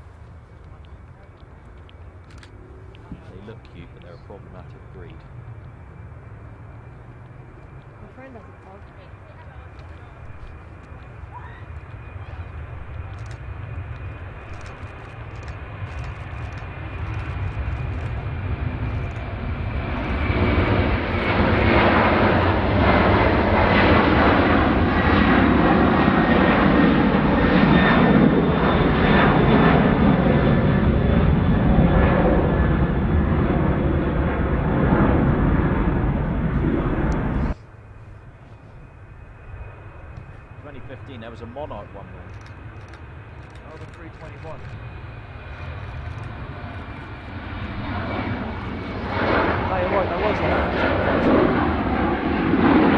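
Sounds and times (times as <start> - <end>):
jet engines rumbling and whining: 0.0 - 52.9.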